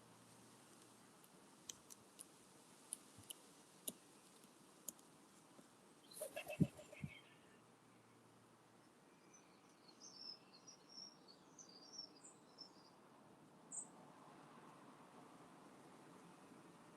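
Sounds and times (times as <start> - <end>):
background hiss: 0.0 - 16.9
small birds chirping: 6.0 - 13.0.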